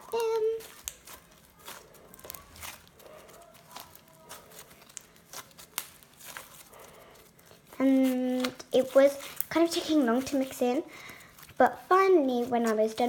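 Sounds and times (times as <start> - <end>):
slime crackling and sticky clicks: 0.2 - 6.7.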